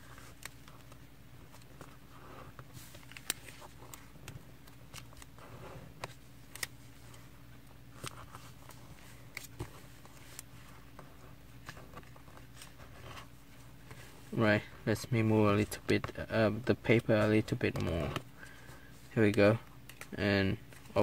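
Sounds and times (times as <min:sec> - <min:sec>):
paper rustling and crinkling: 0:00.0 - 0:07.3.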